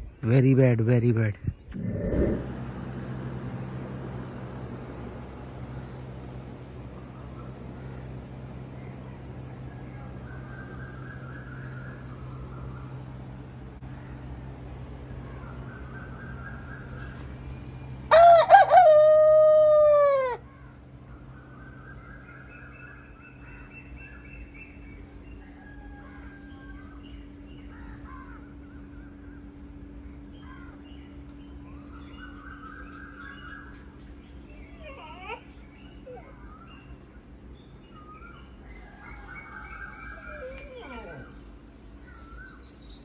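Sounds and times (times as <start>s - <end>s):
faint bird calls: 1.6s - 43.0s
rooster crowing: 18.1s - 20.5s, 25.2s - 27.0s.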